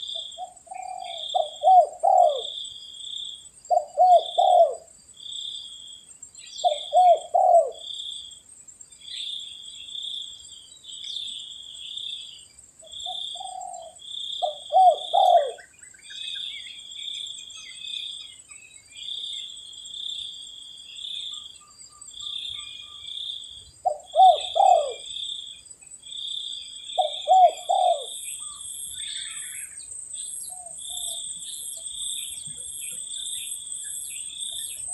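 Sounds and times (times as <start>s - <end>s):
dove cooing: 0.0s - 2.6s, 3.7s - 4.9s, 6.6s - 7.9s, 13.1s - 15.7s, 23.8s - 25.1s, 27.0s - 28.6s.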